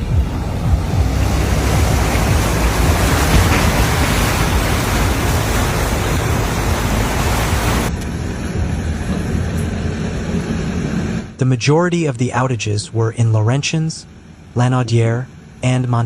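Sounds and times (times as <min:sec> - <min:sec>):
torrential downpour rushing: 0:00.0 - 0:10.6.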